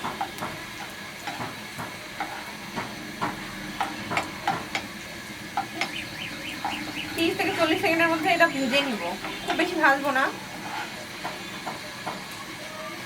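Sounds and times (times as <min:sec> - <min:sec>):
ginger and garlic sizzling in oil: 0:00.0 - 0:13.0
spatula scraping a pan: 0:00.1 - 0:04.9, 0:06.5 - 0:11.9.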